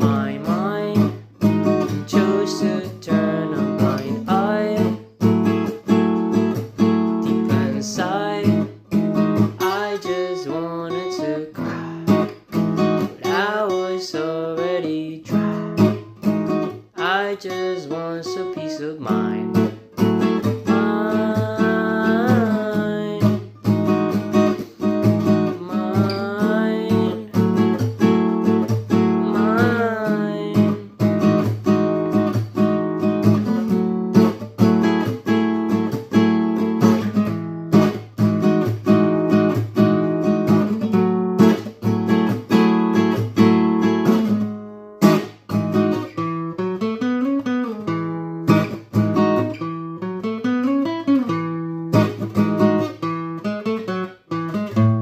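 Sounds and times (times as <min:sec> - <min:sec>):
acoustic guitar strumming: 0:00.0 - 0:55.0
person singing wordless notes: 0:02.1 - 0:05.0, 0:20.6 - 0:23.4, 0:25.5 - 0:27.4, 0:29.1 - 0:30.9.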